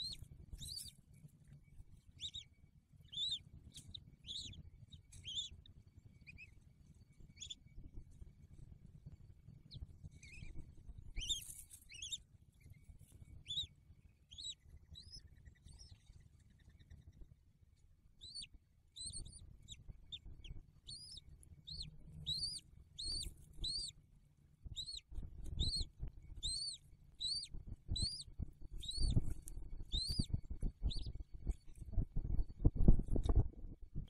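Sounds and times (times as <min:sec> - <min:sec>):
bird chirping: 0:00.0 - 0:08.6, 0:09.6 - 0:17.3, 0:18.2 - 0:24.0, 0:24.7 - 0:34.0
eagle rustling on stick nest: 0:10.3 - 0:12.2.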